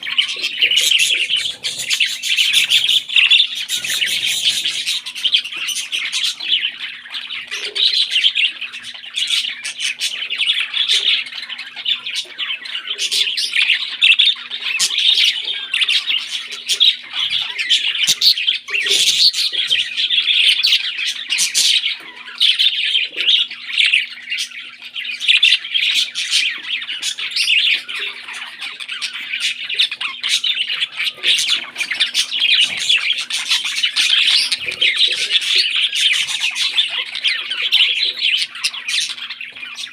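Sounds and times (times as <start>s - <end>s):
parrots chirping and squawking: 0.0s - 39.9s.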